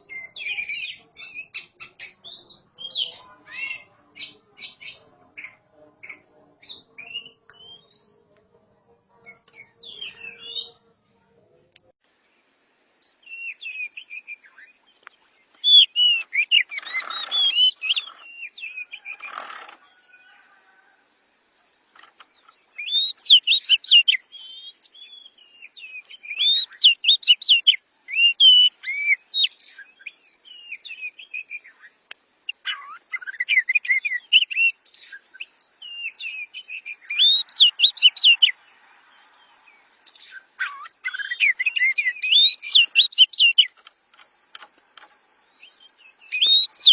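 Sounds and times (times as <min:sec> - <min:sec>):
birds singing whistled notes: 0:00.0 - 0:08.3, 0:09.2 - 0:10.8, 0:13.0 - 0:20.4, 0:22.0 - 0:43.9, 0:44.6 - 0:46.9
faint high-pitched tone: 0:00.0 - 0:12.0.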